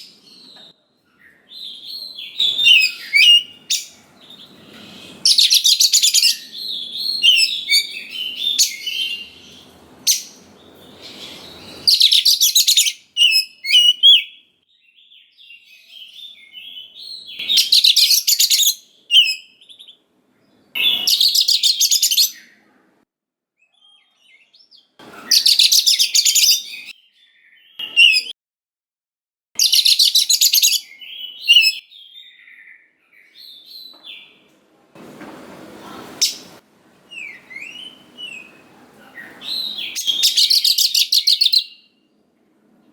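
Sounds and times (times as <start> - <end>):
soft bird chirps and whistles: 0.0 - 20.0, 20.8 - 22.7, 23.6 - 28.4, 29.6 - 34.4, 39.2 - 42.0
bird singing rapid bursts: 5.2 - 14.4.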